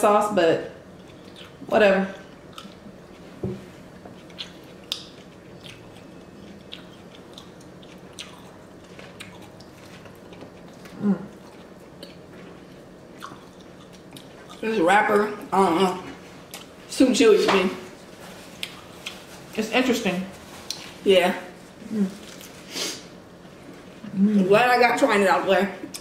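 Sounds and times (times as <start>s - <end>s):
chewing mouth clicks and smacks: 1.0s - 1.6s, 4.2s - 12.2s, 13.2s - 14.6s
person humming: 11.0s - 11.3s, 24.1s - 24.5s.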